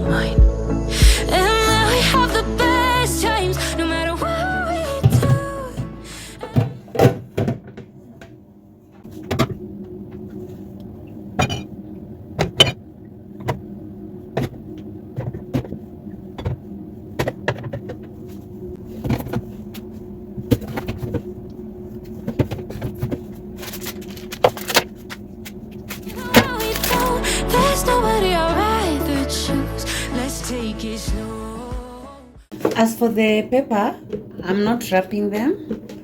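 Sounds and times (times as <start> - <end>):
fridge low hum: 0.4 - 29.2
plastic containers clicking and rustling: 22.3 - 27.2.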